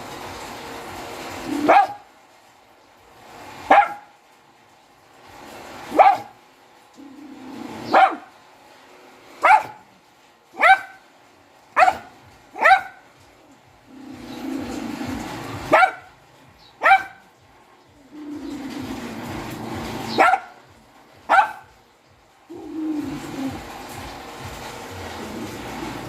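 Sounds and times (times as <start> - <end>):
dog barking: 1.5 - 2.1, 3.6 - 4.1, 5.9 - 6.4, 7.7 - 8.4, 9.4 - 9.9, 10.6 - 11.1, 11.8 - 13.1, 15.6 - 16.2, 16.8 - 17.3, 20.1 - 20.6, 21.3 - 21.7.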